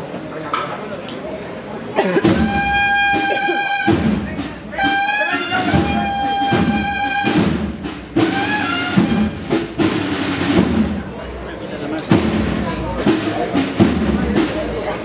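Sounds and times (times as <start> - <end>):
drum strikes: 2.2 - 11.2, 12.0 - 15.0
bugles playing a march: 2.3 - 10.8.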